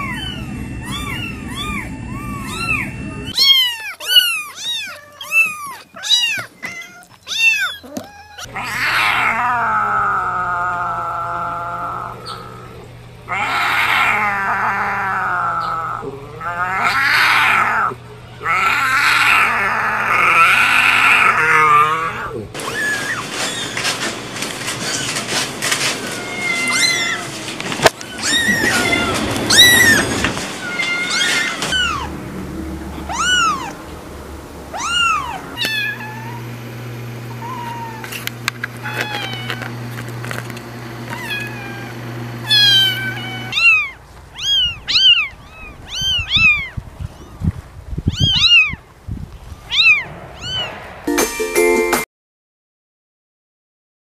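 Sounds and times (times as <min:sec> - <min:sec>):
low rumble: 0:00.0 - 0:03.4, 0:31.7 - 0:35.6, 0:49.3 - 0:51.1
kittens mewing: 0:00.0 - 0:34.0, 0:34.7 - 0:47.4, 0:48.1 - 0:48.8, 0:49.7 - 0:50.8.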